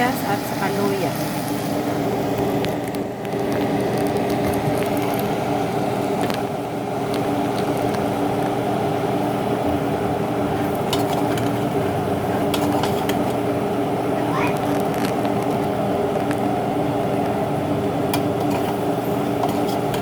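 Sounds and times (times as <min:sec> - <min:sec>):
low mechanical hum: 0:00.0 - 0:20.0
onion and ginger sauteing in pan: 0:00.0 - 0:20.0
utensil clicking against pan: 0:10.9 - 0:11.7, 0:12.4 - 0:13.4, 0:18.1 - 0:20.0.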